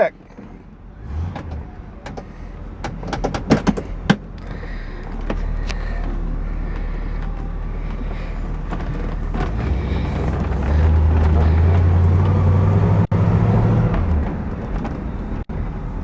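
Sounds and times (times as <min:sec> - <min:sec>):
car engine idling: 0:00.0 - 0:16.0
clicks and knocks inside car: 0:00.3 - 0:12.6.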